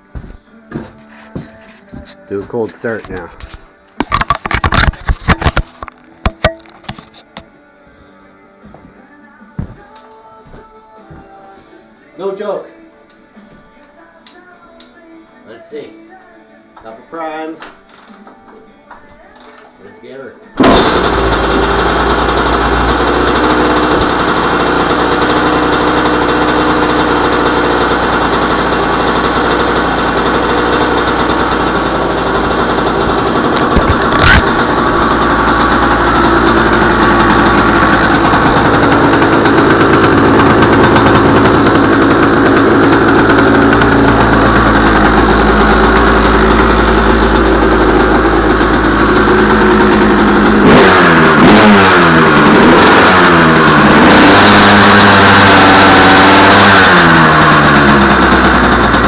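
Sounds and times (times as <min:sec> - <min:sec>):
two-stroke engine running: 0:20.6 - 0:59.0.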